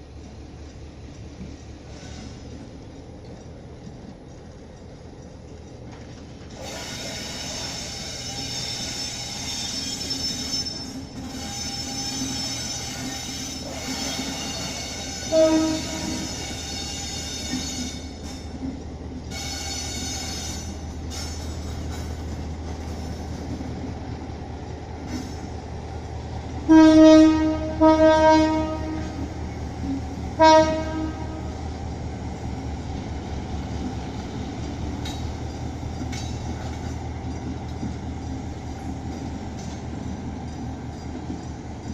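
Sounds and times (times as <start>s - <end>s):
train engine drone: 0.0s - 41.9s
train horn blasts: 11.4s - 18.1s, 19.3s - 20.8s, 26.7s - 29.3s, 29.9s - 31.6s.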